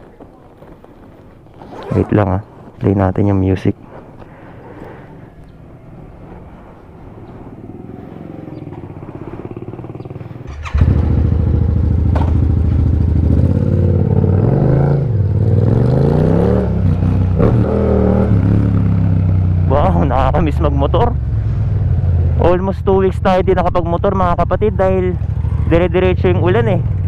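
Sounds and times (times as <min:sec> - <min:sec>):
motorcycle engine revving: 0:07.1 - 0:20.6, 0:24.2 - 0:27.0.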